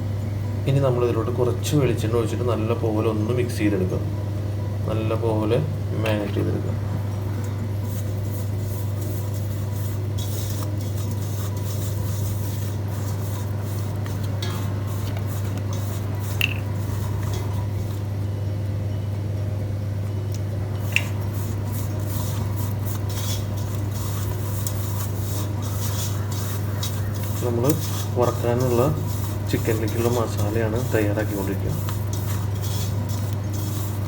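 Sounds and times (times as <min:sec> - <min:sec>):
steady low hum: 0:00.0 - 0:34.0
paste stirred in a bowl: 0:07.8 - 0:18.1, 0:20.8 - 0:34.0.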